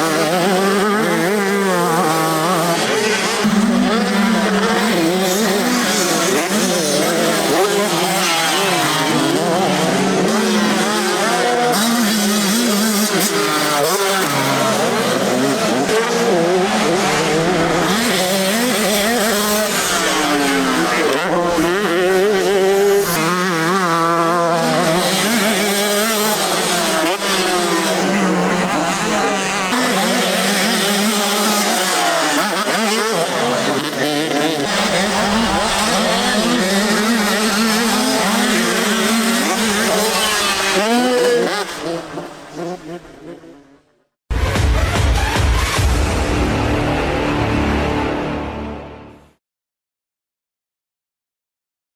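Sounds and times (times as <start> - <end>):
motocross bikes revving: 0.0 - 44.6.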